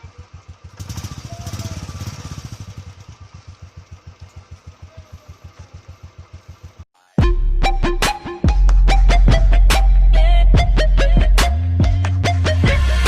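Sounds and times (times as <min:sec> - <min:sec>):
motorcycle engine idling: 0:00.0 - 0:06.9
loud music: 0:07.0 - 0:13.0.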